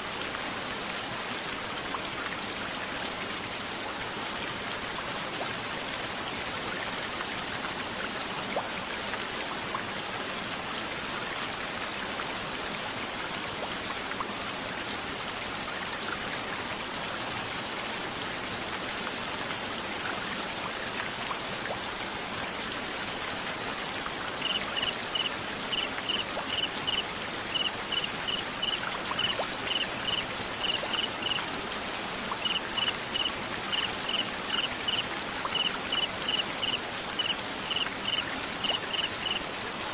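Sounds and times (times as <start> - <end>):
cricket chirping: 24.4 - 31.4, 32.4 - 39.4
rain hissing: 24.4 - 39.4.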